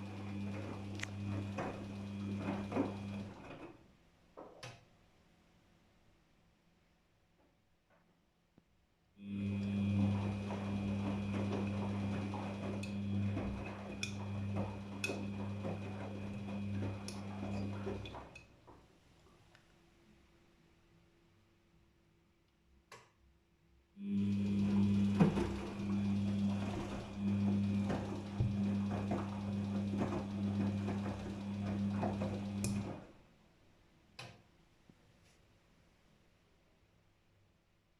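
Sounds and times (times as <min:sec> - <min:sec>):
washing machine churning: 0:00.0 - 0:03.8, 0:09.2 - 0:18.6, 0:24.0 - 0:33.2
washing machine motor hum: 0:00.0 - 0:03.9, 0:09.2 - 0:18.8, 0:24.0 - 0:33.2.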